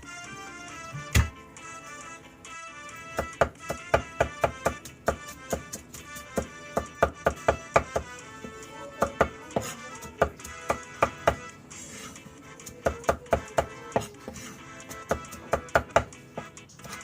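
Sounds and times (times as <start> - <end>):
background music: 0.0 - 17.0
knife chopping on cutting board: 1.0 - 1.4, 3.2 - 8.2, 9.0 - 17.0.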